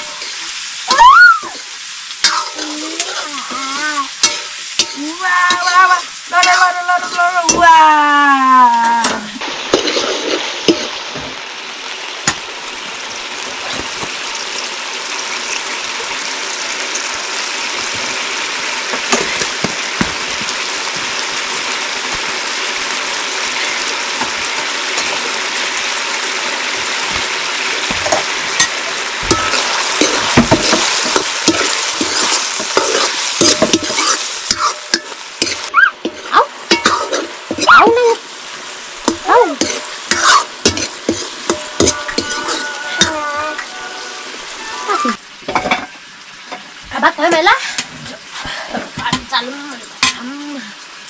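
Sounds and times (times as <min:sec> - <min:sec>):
utensil scraping a pan: 0:00.0 - 0:00.6, 0:02.2 - 0:07.6, 0:09.6 - 0:11.0, 0:27.0 - 0:38.0, 0:39.0 - 0:45.0
food sizzling in hot oil: 0:00.0 - 0:51.0.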